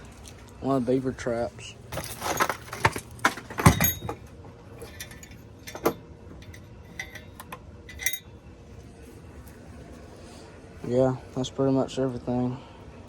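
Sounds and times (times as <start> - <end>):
metal trap clinking and rattling: 1.9 - 8.3.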